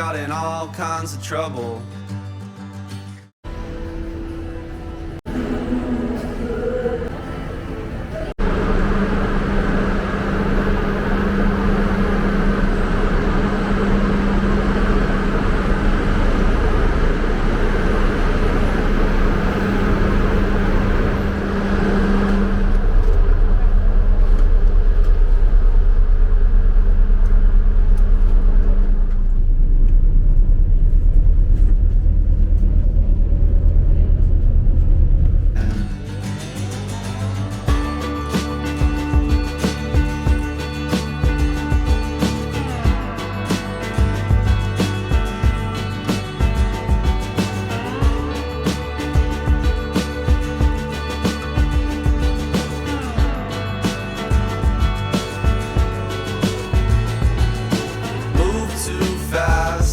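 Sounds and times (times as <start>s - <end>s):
low hum: 3.5s - 59.9s
vehicle engine and road rumble: 3.5s - 59.9s.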